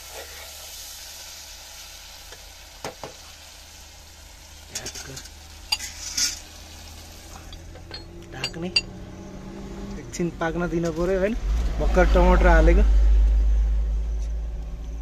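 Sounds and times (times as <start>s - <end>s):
vegetables sizzling in a pot: 0.0s - 7.9s
spoon clinking on metal: 4.7s - 6.4s, 7.4s - 9.0s
spoon scraping a pot: 4.7s - 6.5s.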